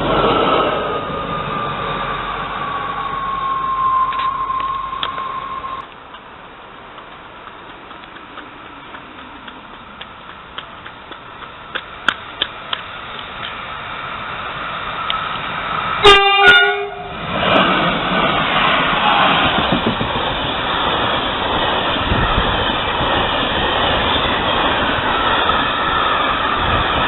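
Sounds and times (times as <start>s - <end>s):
train rumbling past: 0.0s - 27.0s
train horn: 16.0s - 17.2s.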